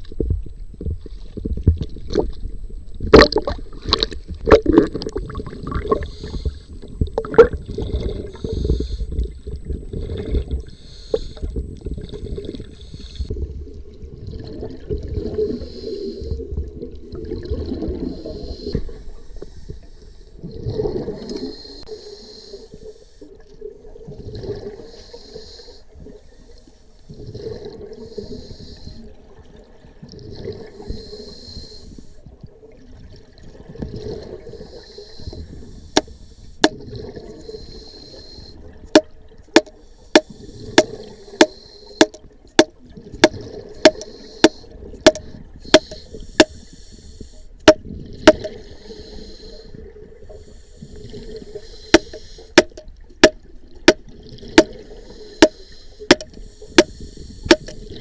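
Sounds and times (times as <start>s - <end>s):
bubbles gurgling: 3.0s - 10.8s, 11.7s - 15.6s, 16.6s - 18.3s, 20.4s - 21.5s, 32.9s - 34.6s, 36.6s - 37.4s, 42.0s - 46.5s, 52.6s - 55.5s
scuba regulator breathing hiss: 5.9s - 6.8s, 8.0s - 9.2s, 10.7s - 11.6s, 12.7s - 13.3s, 15.4s - 16.4s, 18.1s - 20.4s, 21.3s - 23.3s, 24.8s - 27.3s, 28.0s - 29.2s, 30.4s - 32.2s, 34.4s - 36.6s, 37.3s - 38.7s, 39.8s - 42.2s, 43.9s - 47.6s, 48.5s - 52.6s, 54.8s - 58.0s
sharp knocks: 39.0s - 46.6s, 47.7s - 48.5s, 52.0s - 54.0s, 55.4s - 56.9s, 57.5s - 57.8s.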